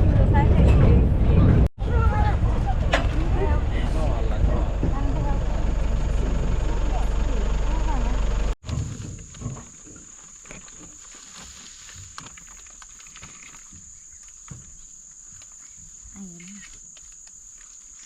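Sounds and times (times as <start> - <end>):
loud vehicle engine: 0.0 - 8.6.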